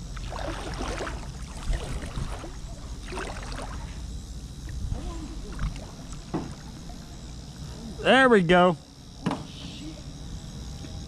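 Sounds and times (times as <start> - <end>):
fish splashing in water: 0.2 - 4.0.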